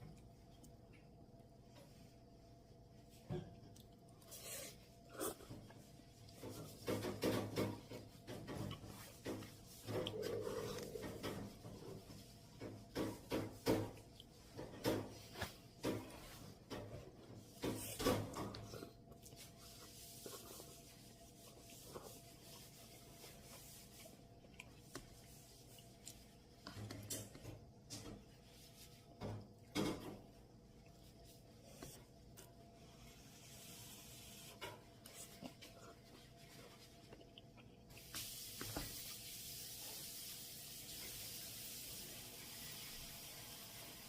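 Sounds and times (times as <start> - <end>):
steady hiss: 38.0 - 44.0.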